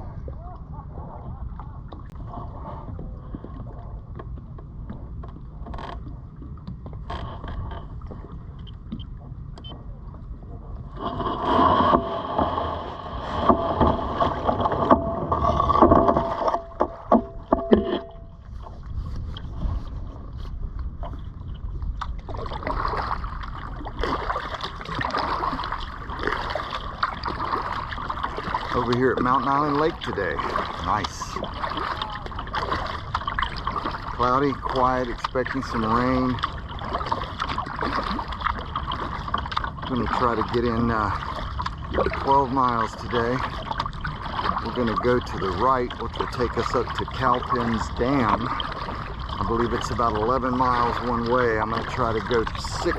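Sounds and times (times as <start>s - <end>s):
wind rumble on microphone: 0.0s - 52.9s
kayak rubbing and knocking: 0.8s - 52.9s.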